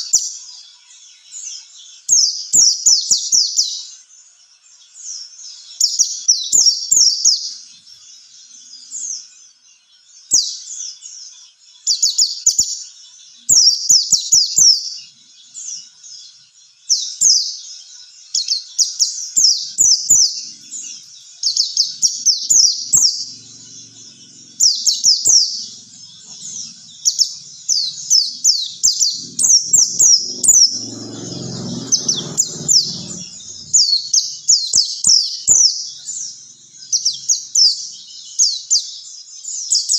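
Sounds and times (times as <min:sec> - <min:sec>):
bird chirping song: 0:00.0 - 0:39.9
low rumble: 0:22.0 - 0:34.3.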